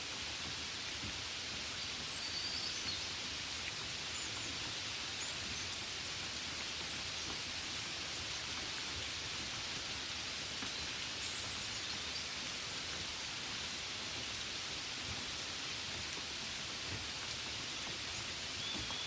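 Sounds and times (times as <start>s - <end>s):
gentle rain falling: 0.0s - 19.0s.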